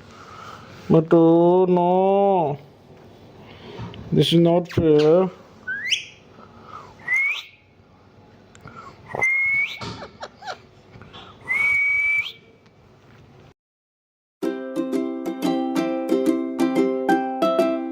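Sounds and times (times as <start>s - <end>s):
person whistling: 5.7s - 6.2s, 7.0s - 7.6s, 9.1s - 9.9s, 11.4s - 12.5s.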